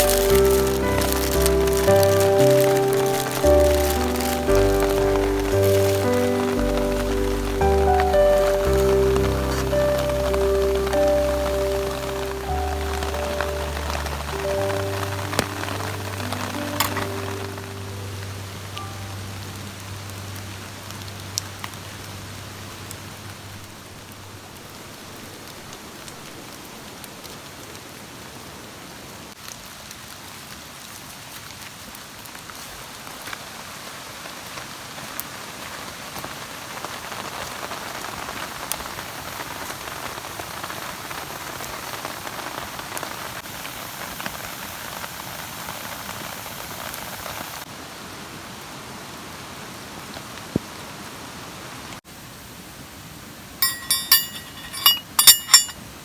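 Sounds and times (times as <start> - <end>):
raindrops ticking: 0.0 - 24.2
steady rain falling: 0.0 - 54.0.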